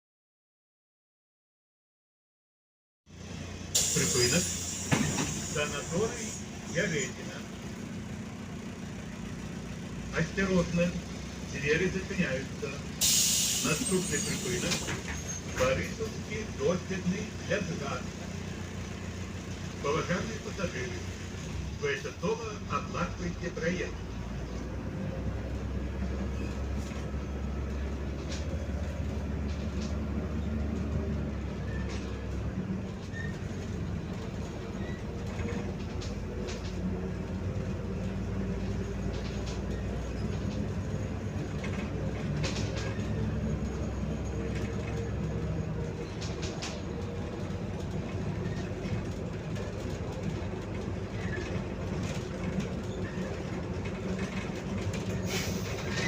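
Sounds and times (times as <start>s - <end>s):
bus engine and road drone: 3.1s - 56.0s
rattling clicks in cabin: 35.2s - 37.4s, 41.4s - 43.1s, 44.5s - 55.2s.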